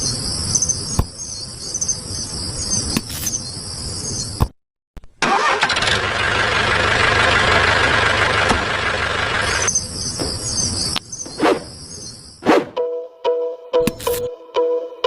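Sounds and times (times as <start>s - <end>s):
crickets chirping: 0.0s - 4.4s, 9.4s - 12.4s
small engine rattling: 5.2s - 10.8s.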